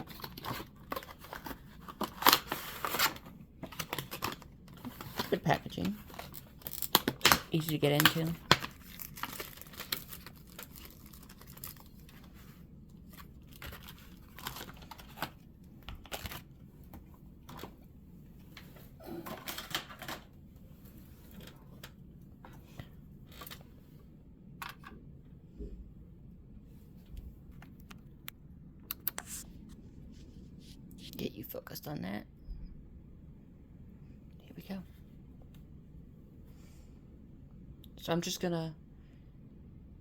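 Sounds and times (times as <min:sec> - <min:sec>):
packaging rustling and crinkling: 0:00.0 - 0:17.7.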